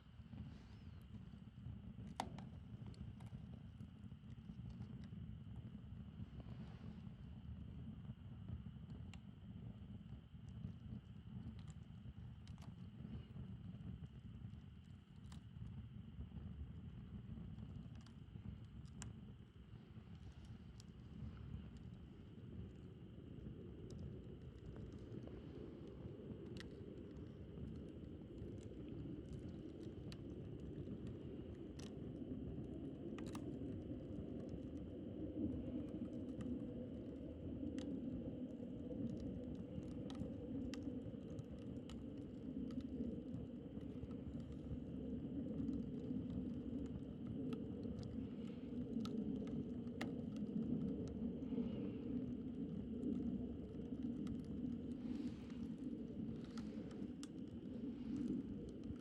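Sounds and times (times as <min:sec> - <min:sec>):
wood crackling and popping: 0:17.5 - 0:59.0
campfire flames rushing: 0:19.6 - 0:59.0.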